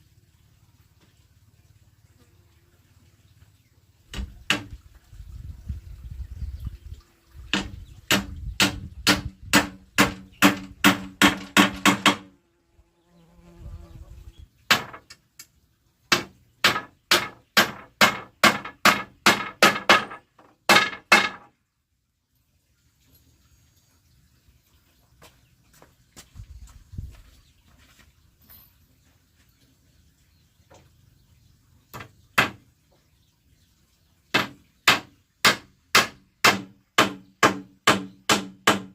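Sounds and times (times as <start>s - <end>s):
hammer blows on wood: 7.5s - 12.4s.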